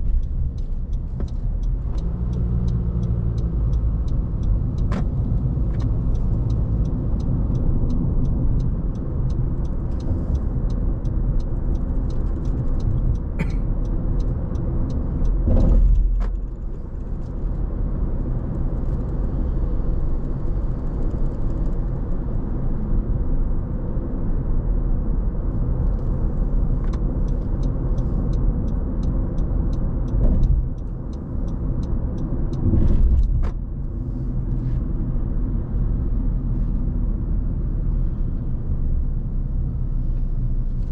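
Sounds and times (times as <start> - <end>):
light regular ticking: 0.0 - 22.1, 25.7 - 32.6
car road and engine rumble: 0.0 - 40.9.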